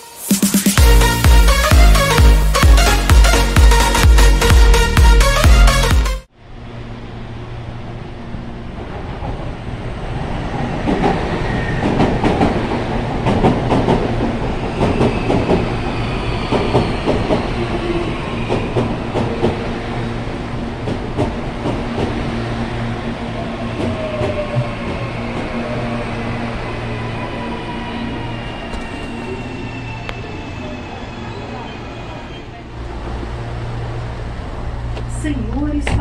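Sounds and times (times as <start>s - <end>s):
train motor whine: 26.7s - 32.3s.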